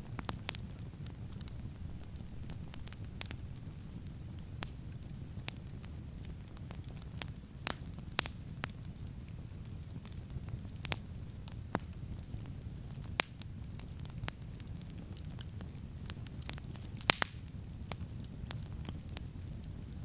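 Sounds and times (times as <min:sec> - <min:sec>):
campfire crackling: 0:00.0 - 0:20.0
sharp fire pops: 0:00.0 - 0:20.0.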